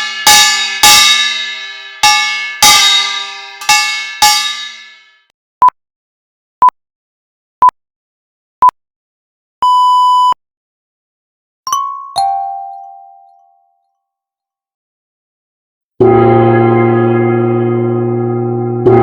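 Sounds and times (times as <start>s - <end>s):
electronic countdown beeps: 9.6s - 10.4s
two-note ding-dong chime: 11.7s - 13.8s.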